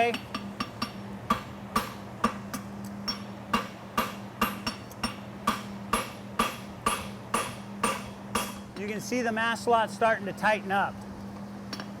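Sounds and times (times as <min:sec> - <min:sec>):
hammer striking on anvil: 0:00.0 - 0:08.7.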